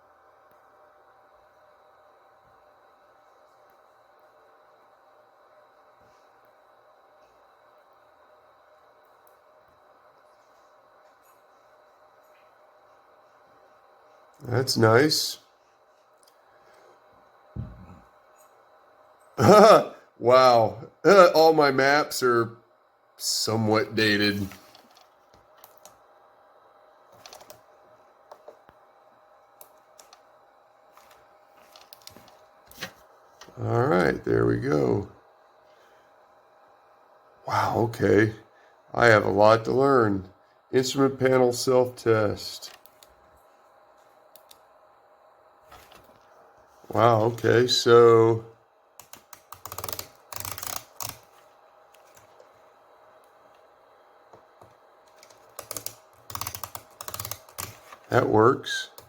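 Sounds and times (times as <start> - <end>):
faint electronic hum: 0.0 - 59.0
rapid keyboard-like clicking: 49.0 - 51.3, 55.1 - 58.0.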